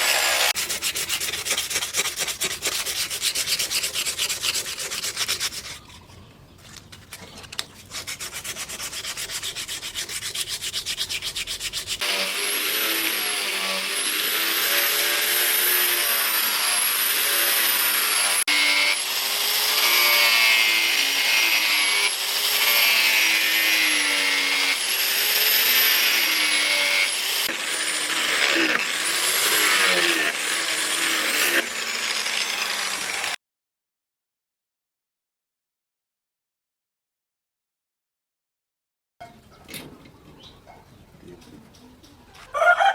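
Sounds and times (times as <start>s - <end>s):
electric sander sanding: 0.0s - 5.7s, 8.0s - 33.4s.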